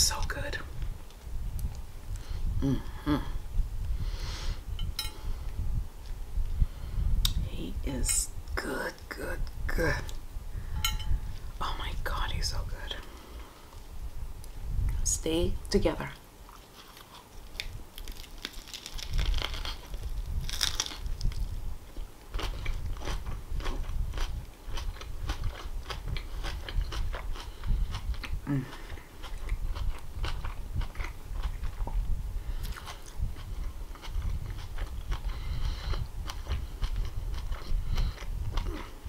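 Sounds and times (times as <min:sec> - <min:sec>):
crunchy chewing: 0:16.4 - 0:39.0.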